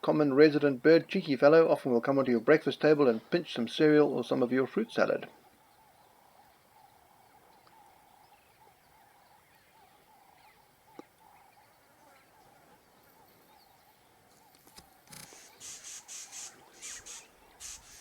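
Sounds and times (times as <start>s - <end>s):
small birds chirping: 4.3s - 18.0s.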